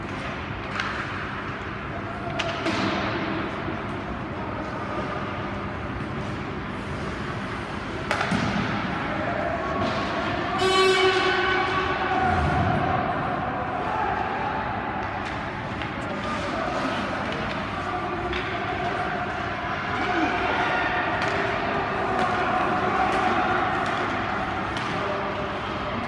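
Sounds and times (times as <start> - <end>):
murmur of voices: 8.6 - 26.0
horn blast: 10.5 - 12.6.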